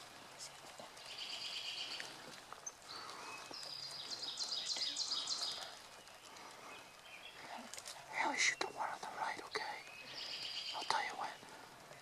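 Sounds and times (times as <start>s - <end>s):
quiet woodland hiss: 0.0s - 12.0s.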